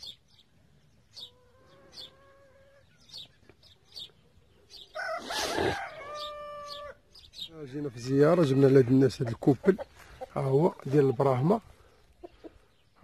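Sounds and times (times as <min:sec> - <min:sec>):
rooster crowing: 0:04.9 - 0:07.0.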